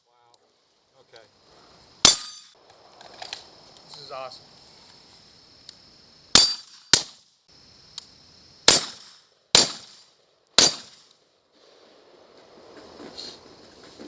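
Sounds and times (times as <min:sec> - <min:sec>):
pistol shots: 0:02.0 - 0:02.5, 0:06.3 - 0:07.2, 0:08.6 - 0:11.1.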